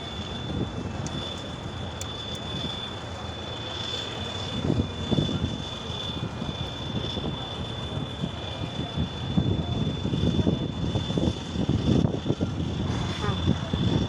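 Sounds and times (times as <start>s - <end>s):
wind buffeting microphone: 0.0s - 3.3s, 4.1s - 14.0s
thin high whine: 11.7s - 14.0s.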